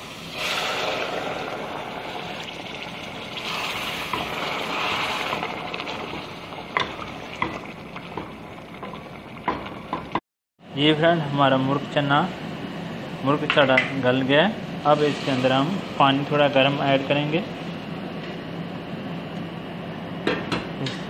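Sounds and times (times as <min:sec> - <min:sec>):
water hissing in hot oil: 0:00.0 - 0:09.4
pot bubbling: 0:00.0 - 0:10.2.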